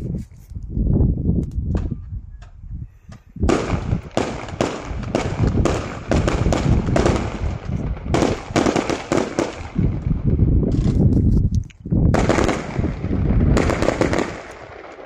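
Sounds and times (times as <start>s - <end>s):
fireworks bangs: 3.4s - 11.2s, 12.1s - 15.0s.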